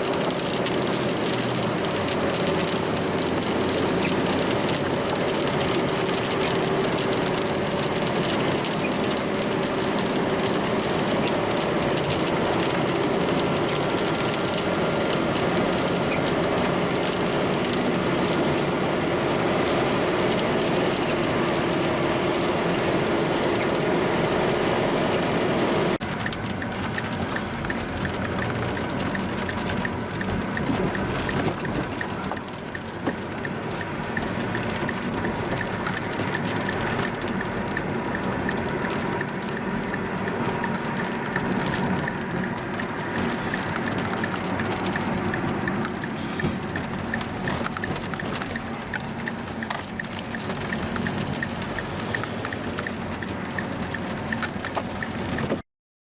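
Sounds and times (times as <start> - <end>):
steady rain: 0.0 - 55.6
vehicle road noise: 0.0 - 55.6.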